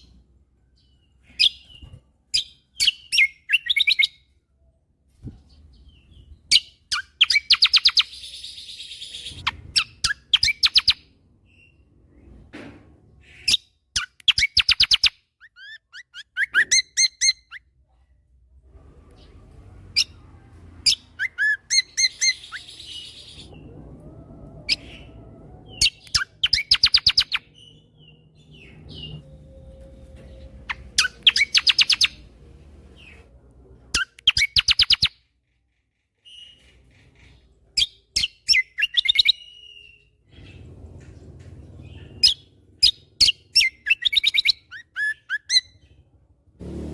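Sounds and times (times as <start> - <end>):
songbird chirping: 0.0 - 46.9
faint low rumble: 17.7 - 21.2, 21.8 - 34.0, 40.0 - 43.6.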